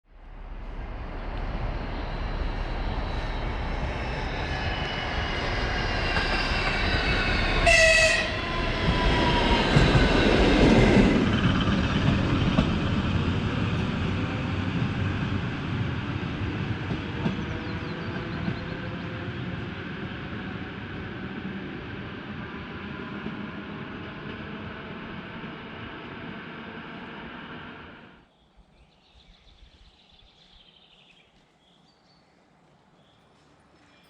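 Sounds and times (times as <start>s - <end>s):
train rumble passing: 0.1s - 28.3s
train horn blast: 7.4s - 8.7s.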